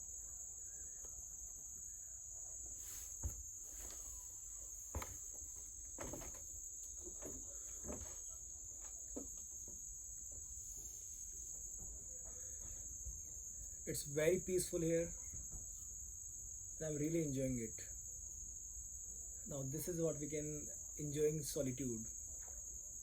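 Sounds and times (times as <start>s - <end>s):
insects droning: 0.0s - 23.0s
soft thumps and knocks: 2.7s - 4.3s, 4.9s - 10.8s.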